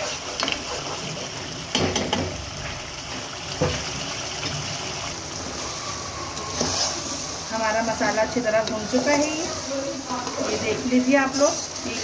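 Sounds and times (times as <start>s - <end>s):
food frying in oil: 0.0s - 12.0s
spatula scraping a pan: 6.5s - 12.0s.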